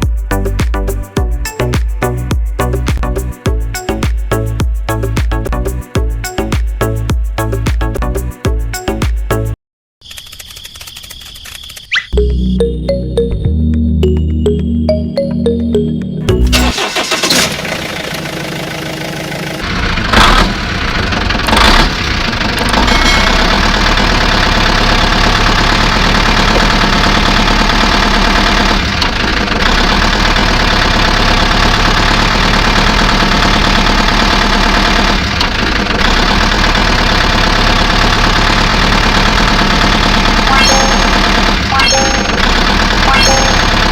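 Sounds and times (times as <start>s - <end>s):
engine starting and idling: 16.3s - 43.9s.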